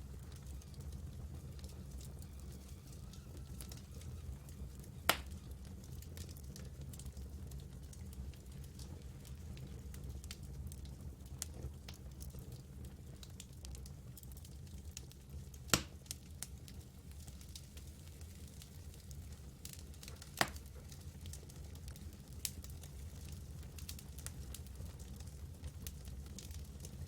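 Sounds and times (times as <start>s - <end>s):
campfire crackling: 0.0s - 27.0s
sharp fire pops: 4.7s - 5.6s, 15.7s - 16.0s, 20.0s - 20.8s.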